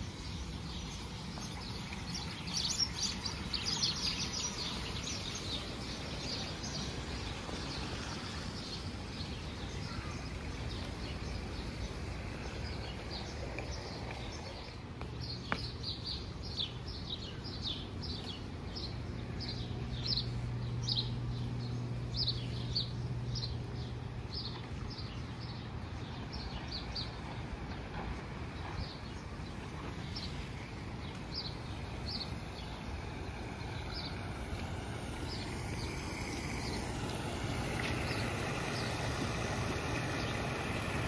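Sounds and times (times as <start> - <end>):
birds chirping: 0.0 - 41.0
low outdoor rush: 0.0 - 41.0.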